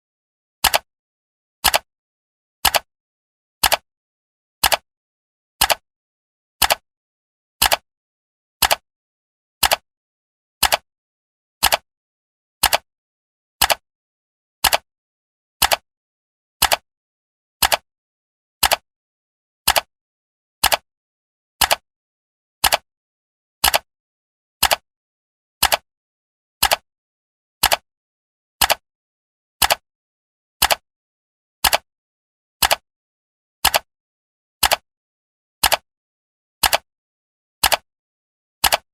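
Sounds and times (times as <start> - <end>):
clock ticking: 8.6 - 8.8, 14.6 - 14.8, 22.6 - 22.8, 26.6 - 26.8, 27.6 - 27.8, 29.6 - 29.8, 30.6 - 30.8, 31.6 - 31.8, 32.6 - 32.8, 35.6 - 35.8, 36.6 - 36.8, 37.6 - 37.8, 38.6 - 38.9.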